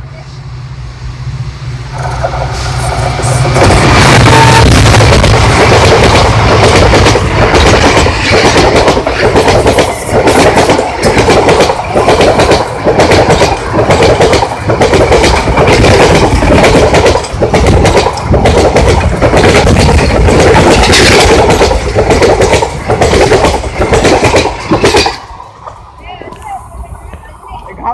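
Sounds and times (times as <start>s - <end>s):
train wheels clattering over rail joints: 5.0s - 25.8s.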